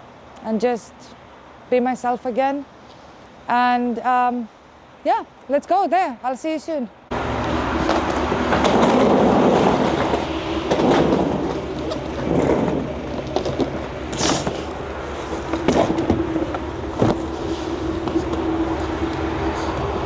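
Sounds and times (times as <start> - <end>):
low hum: 7.1 - 20.0
vehicle rumble from inside: 7.1 - 20.0.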